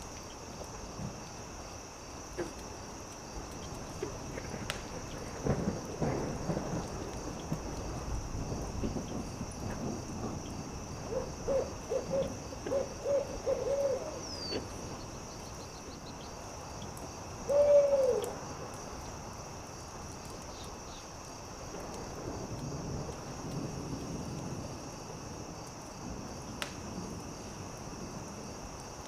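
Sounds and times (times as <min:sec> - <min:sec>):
campfire crackling: 0:00.0 - 0:29.0
steady hiss: 0:00.0 - 0:29.0
owl hooting: 0:11.1 - 0:14.7, 0:17.5 - 0:18.3.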